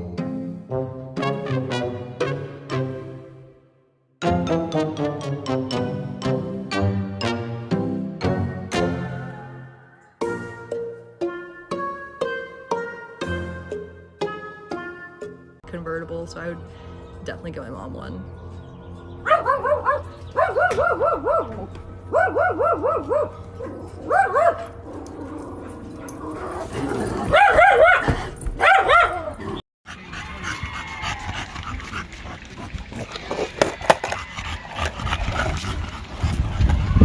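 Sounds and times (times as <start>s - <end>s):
dog yipping: 19.3s - 24.7s, 27.3s - 29.3s.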